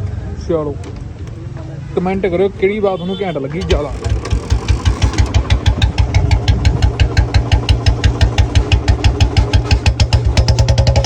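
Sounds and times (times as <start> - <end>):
motorcycle engine idling: 2.7 - 11.0.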